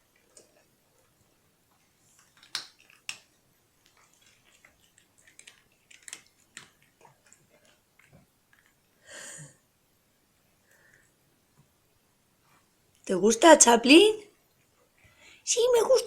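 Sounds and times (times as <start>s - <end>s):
cat crunching dry kibble: 1.8s - 8.8s.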